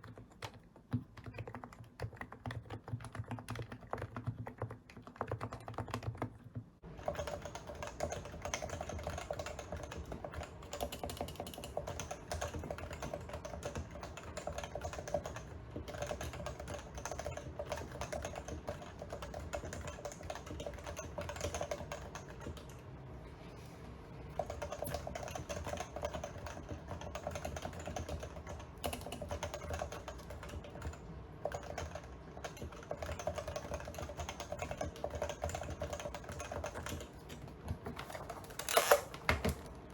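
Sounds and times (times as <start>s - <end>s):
fast keyboard typing: 0.0s - 22.8s, 24.3s - 39.9s.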